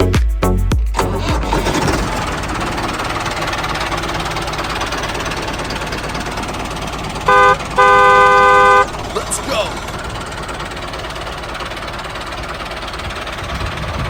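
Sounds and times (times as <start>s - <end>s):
tractor engine running: 0.0s - 14.0s
vehicle horn toots: 7.3s - 9.2s.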